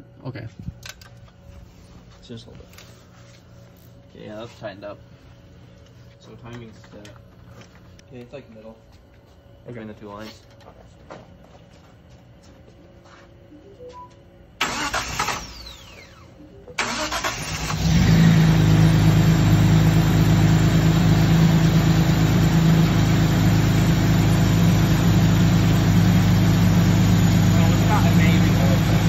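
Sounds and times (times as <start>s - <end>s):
engine starter cranking: 14.6s - 16.2s, 16.8s - 18.2s
car engine idling: 16.8s - 29.0s.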